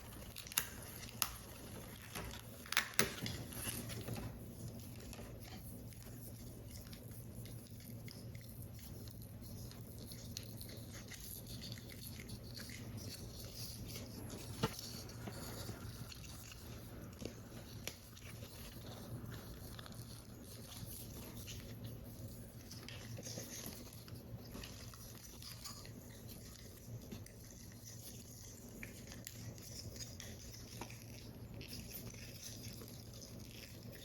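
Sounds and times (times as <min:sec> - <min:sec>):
paper crackles and ticks: 0:00.0 - 0:12.2
steady low hum: 0:00.0 - 0:34.0.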